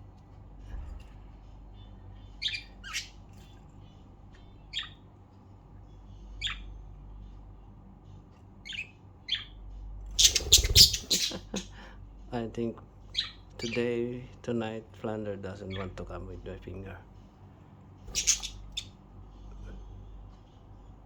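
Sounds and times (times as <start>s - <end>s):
budgerigars squawking: 2.4s - 3.1s, 10.2s - 11.8s, 18.1s - 18.9s
budgerigars chirping: 2.4s - 3.2s, 8.6s - 9.5s, 10.2s - 11.7s, 13.1s - 13.9s, 18.1s - 19.0s.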